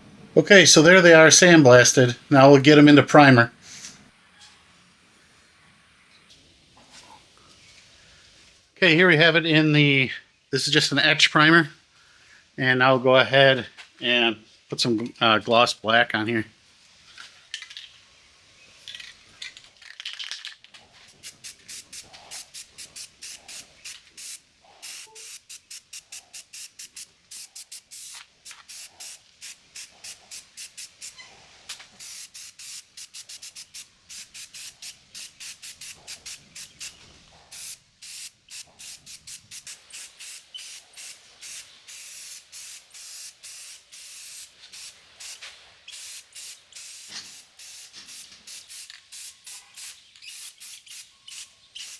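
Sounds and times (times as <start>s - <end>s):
spray paint hissing bursts: 0.6s - 4.0s, 21.1s - 51.9s.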